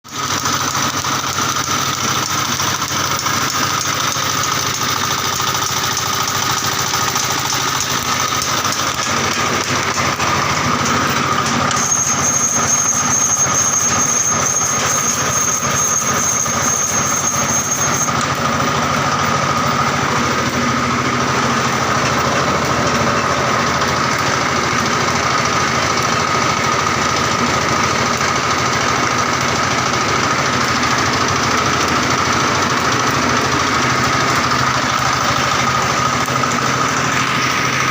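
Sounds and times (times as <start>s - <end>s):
diesel engine clattering with whine: 0.0s - 37.9s
thin high tone: 7.6s - 24.4s.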